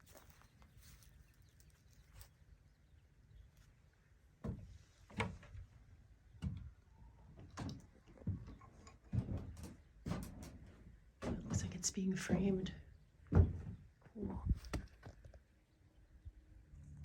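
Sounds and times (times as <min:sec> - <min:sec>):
slow footsteps with crunch: 0:00.0 - 0:02.6.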